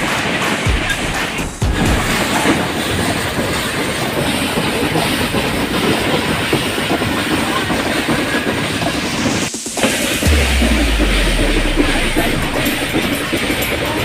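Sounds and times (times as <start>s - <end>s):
train wheels clattering on rails: 0.0s - 9.5s.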